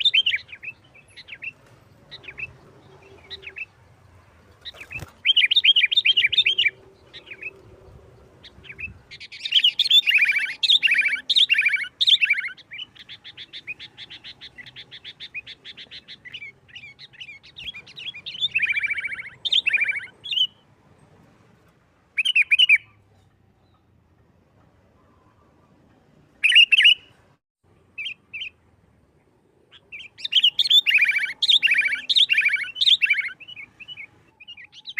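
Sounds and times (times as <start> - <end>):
bulbul singing chattering phrases: 4.6 - 20.6, 29.7 - 34.9.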